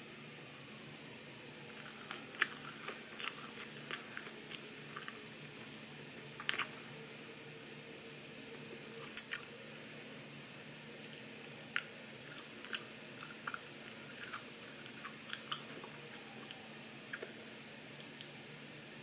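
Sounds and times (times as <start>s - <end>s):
open-mouth chewing: 1.6s - 6.8s, 9.0s - 9.5s, 10.4s - 19.0s.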